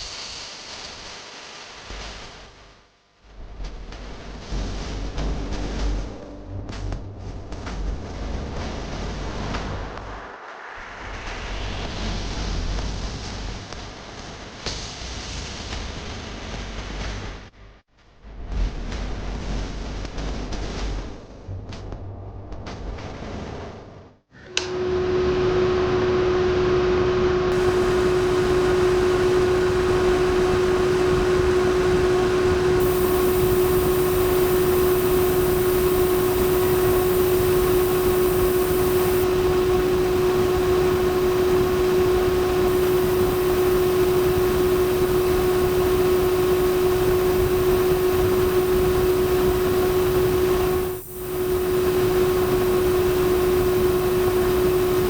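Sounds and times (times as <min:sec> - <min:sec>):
small electric fan whirring: 0:24.5 - 0:55.0.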